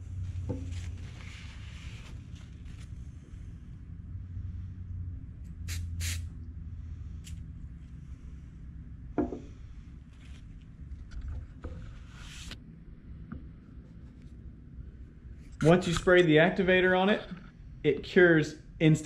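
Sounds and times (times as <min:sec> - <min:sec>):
low steady hum: 0:00.0 - 0:19.0
aerosol spray hissing: 0:05.7 - 0:06.3.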